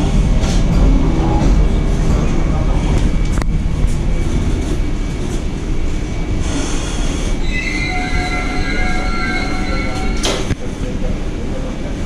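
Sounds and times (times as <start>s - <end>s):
electric train rumble: 0.0s - 12.0s
brake and wheel squeal: 7.4s - 10.5s.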